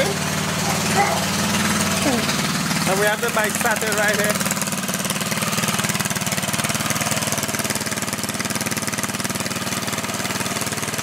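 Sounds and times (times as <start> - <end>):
small gas engine idling: 0.0 - 11.0.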